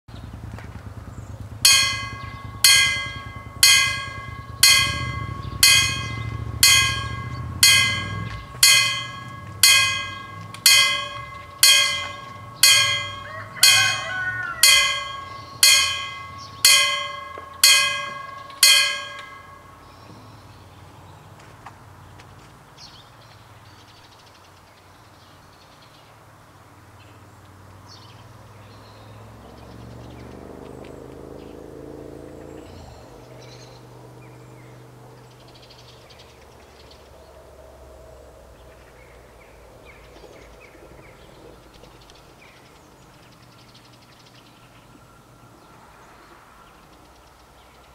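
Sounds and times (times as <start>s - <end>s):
crossing warning bell ringing: 1.6s - 20.0s.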